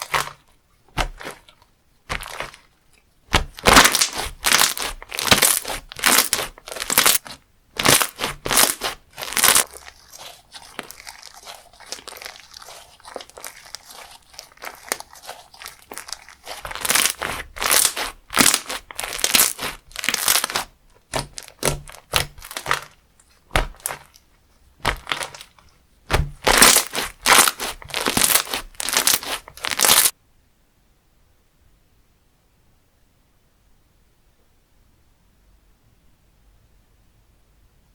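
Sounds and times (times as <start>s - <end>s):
slime squeezed by hand crackling: 0.0s - 2.7s, 3.3s - 30.1s.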